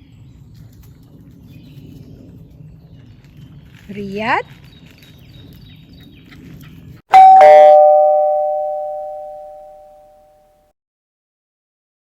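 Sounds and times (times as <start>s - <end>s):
two-note ding-dong chime: 7.2s - 10.1s.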